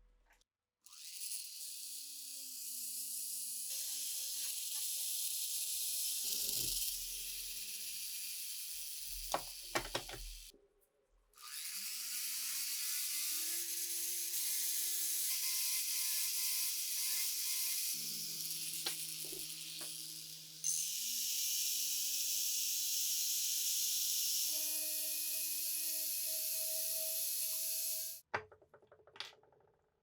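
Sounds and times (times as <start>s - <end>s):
power tool whining: 11.4s - 28.2s.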